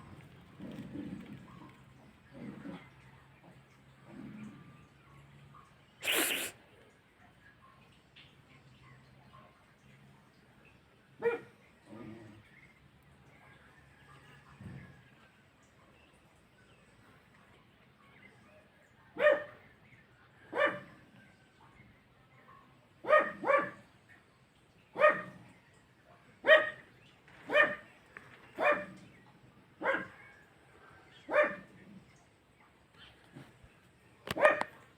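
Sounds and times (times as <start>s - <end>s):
dog barking: 11.2s - 11.5s, 19.1s - 19.7s, 20.5s - 21.0s, 22.5s - 23.8s, 25.0s - 25.4s, 26.1s - 26.9s, 27.5s - 27.9s, 28.6s - 29.0s, 29.8s - 30.4s, 31.2s - 31.8s, 34.3s - 34.8s.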